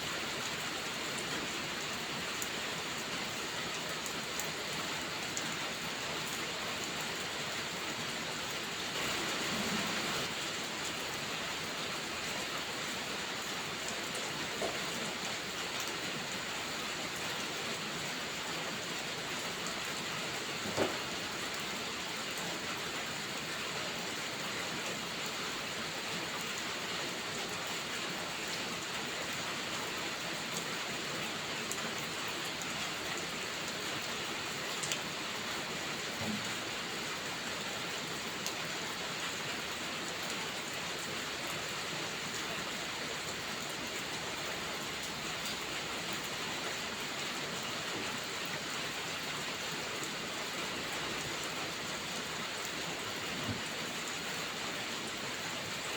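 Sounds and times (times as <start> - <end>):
steady rainfall: 0.0 - 55.9.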